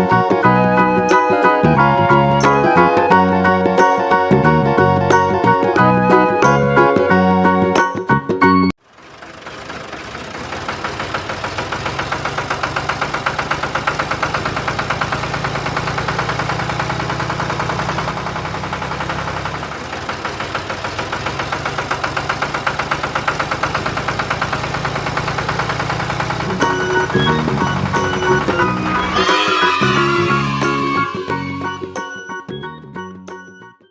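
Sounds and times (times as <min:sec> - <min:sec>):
tractor engine idling: 0:08.8 - 0:32.4.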